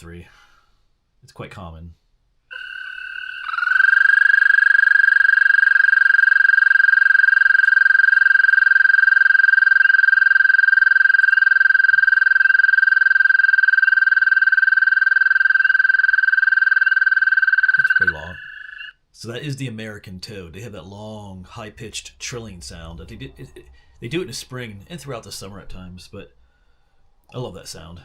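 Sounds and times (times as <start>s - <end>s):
toad trilling: 2.5s - 19.0s.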